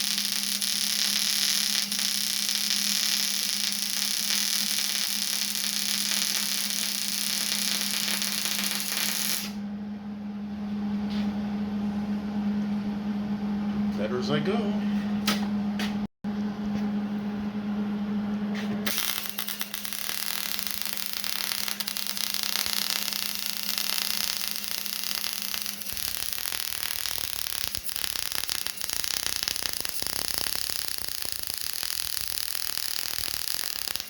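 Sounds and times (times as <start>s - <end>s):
welding arc crackling: 0.0s - 9.6s, 18.9s - 34.0s.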